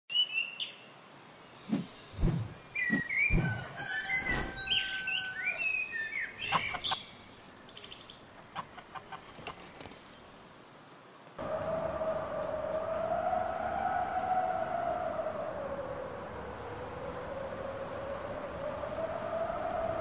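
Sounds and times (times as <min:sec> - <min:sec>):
birds chirping and calling: 0:01.7 - 0:09.2.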